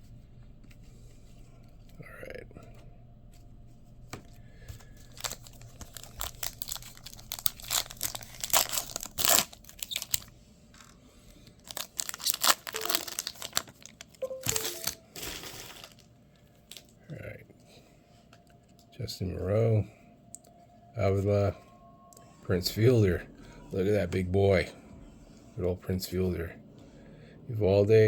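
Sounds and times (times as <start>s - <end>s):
card pack wrapper crackling: 4.7s - 16.1s.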